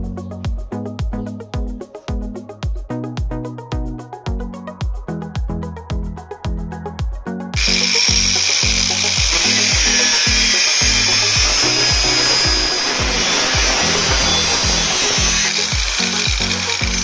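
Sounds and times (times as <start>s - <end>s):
background music with beat: 0.0s - 17.0s
power tool high whine: 7.6s - 17.0s.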